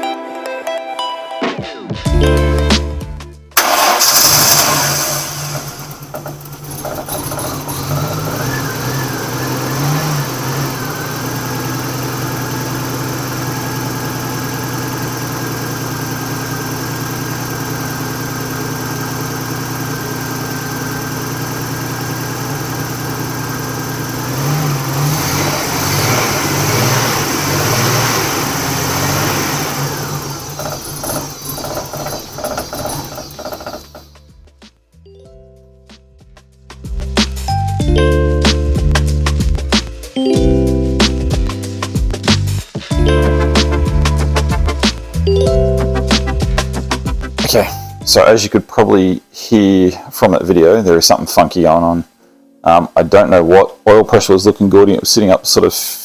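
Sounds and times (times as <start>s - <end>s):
engine revving: 3.6s - 34.2s
misfiring car engine running: 3.6s - 34.6s, 41.1s - 48.0s.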